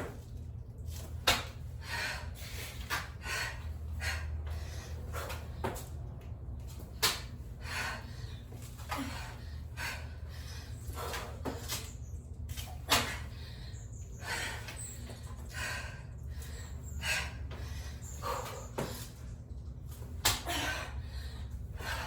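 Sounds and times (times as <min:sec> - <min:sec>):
steady low hum: 0:00.0 - 0:22.0
hard breathing: 0:07.4 - 0:11.6, 0:12.9 - 0:19.6, 0:20.5 - 0:22.0.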